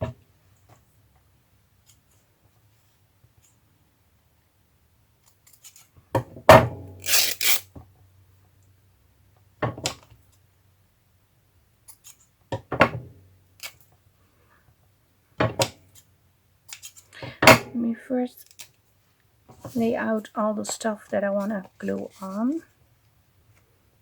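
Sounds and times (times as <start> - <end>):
scissors snipping: 7.0 - 7.6.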